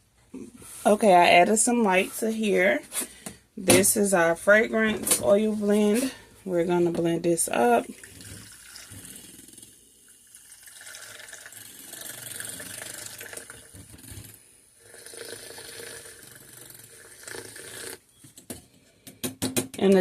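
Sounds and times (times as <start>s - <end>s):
stick blender churning liquid: 10.4s - 18.0s.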